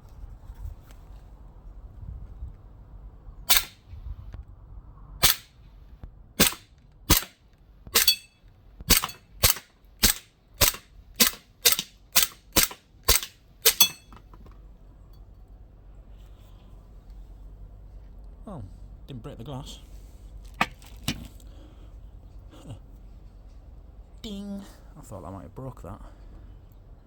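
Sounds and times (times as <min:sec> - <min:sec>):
air pistol shots: 0:03.5 - 0:03.8, 0:05.2 - 0:05.6, 0:06.4 - 0:07.4, 0:08.0 - 0:08.3, 0:08.9 - 0:14.2.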